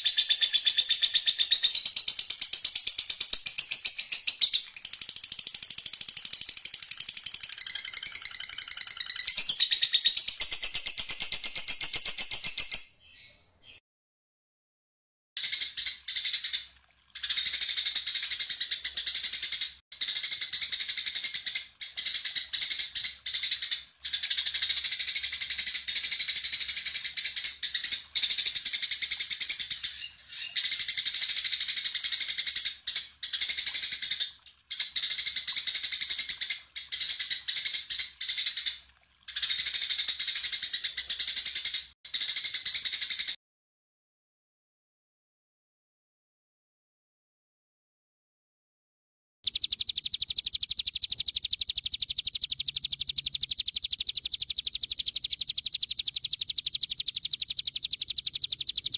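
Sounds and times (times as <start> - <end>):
songbird chirps and trills: 0.0 - 13.8, 49.5 - 58.9.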